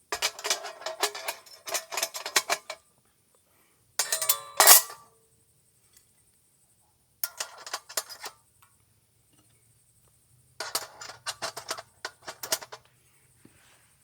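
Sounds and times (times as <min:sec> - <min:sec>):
utensils and cookware clinking: 0:00.2 - 0:02.8, 0:04.0 - 0:05.0.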